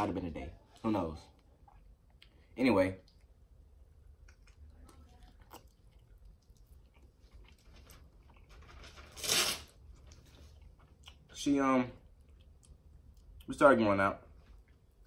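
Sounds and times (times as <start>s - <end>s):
person chewing with wet smacks: 1.3s - 8.5s, 10.0s - 11.4s, 12.0s - 13.6s, 14.3s - 15.0s.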